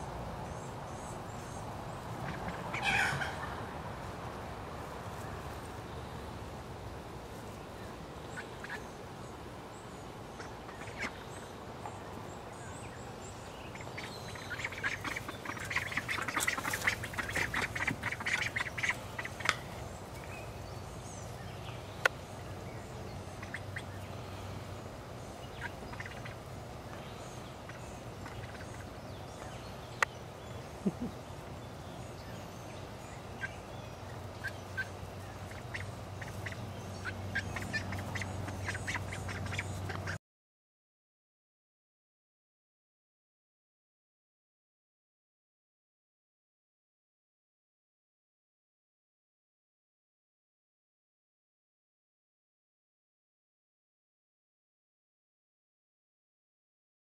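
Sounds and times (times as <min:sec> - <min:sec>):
ducks quacking: 0:02.1 - 0:03.6, 0:08.3 - 0:08.9, 0:10.4 - 0:11.5, 0:13.7 - 0:19.7, 0:23.3 - 0:24.1, 0:25.5 - 0:26.5, 0:27.6 - 0:29.0, 0:34.2 - 0:40.2.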